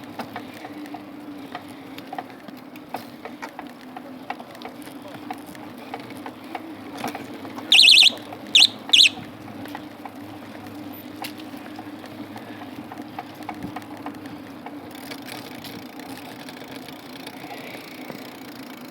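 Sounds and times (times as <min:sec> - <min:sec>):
high-pitched whistle blasts: 0:07.7 - 0:09.2.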